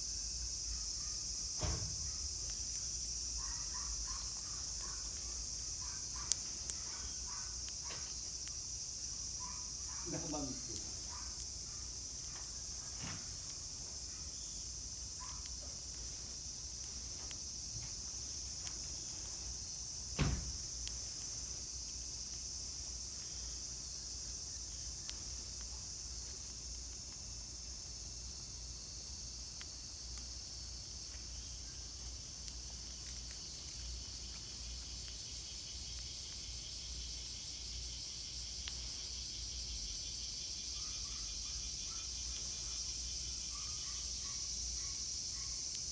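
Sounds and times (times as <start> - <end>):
insects chorus: 0.0 - 45.9
sharp knock: 20.2 - 20.5.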